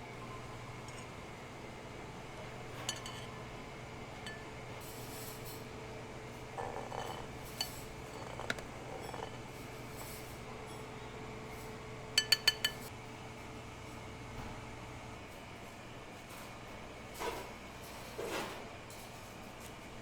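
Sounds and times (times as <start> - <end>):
utensils and bowls clinking: 2.5 - 3.5, 4.2 - 5.7, 6.4 - 11.0, 12.2 - 12.9.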